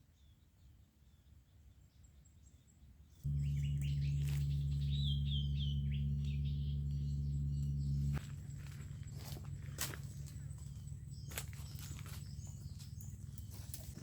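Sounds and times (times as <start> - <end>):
birds chirping faintly: 0.1 - 14.0
loud steady low hum: 3.2 - 14.0
bird call with falling notes: 3.3 - 14.0.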